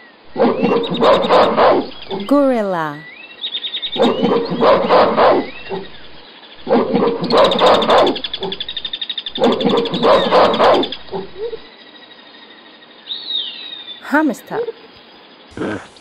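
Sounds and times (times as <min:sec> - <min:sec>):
gorilla vocalizing: 0:00.3 - 0:02.6, 0:03.9 - 0:06.0, 0:06.6 - 0:08.8, 0:09.4 - 0:11.6, 0:15.5 - 0:16.0.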